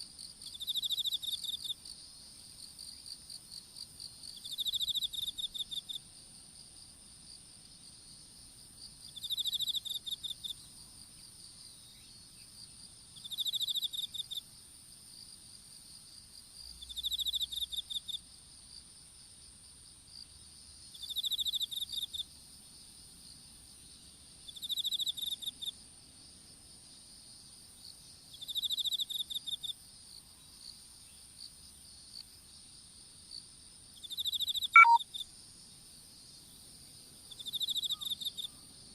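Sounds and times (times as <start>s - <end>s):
insect pulsed chirp: 9.1s - 12.6s, 13.2s - 14.4s, 16.8s - 18.2s, 34.0s - 35.2s.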